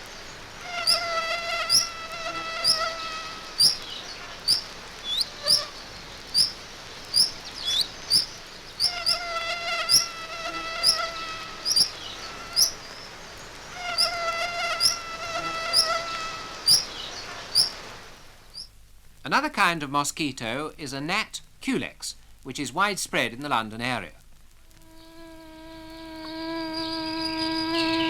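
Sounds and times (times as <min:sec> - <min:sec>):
mosquito whine: 0:00.6 - 0:05.8, 0:06.4 - 0:12.8, 0:13.8 - 0:17.8, 0:24.8 - 0:28.0
sharp high chirps: 0:00.8 - 0:01.1, 0:01.7 - 0:02.0, 0:02.6 - 0:02.9, 0:03.6 - 0:03.8, 0:04.4 - 0:05.7, 0:06.3 - 0:06.6, 0:07.2 - 0:09.2, 0:11.7 - 0:12.0, 0:12.6 - 0:12.8.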